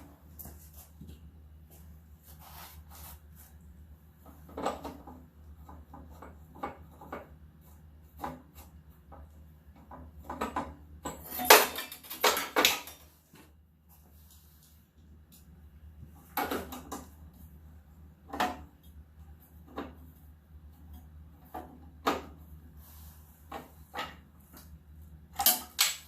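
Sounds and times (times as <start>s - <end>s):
metal parts clattering on workbench: 11.1s - 13.1s.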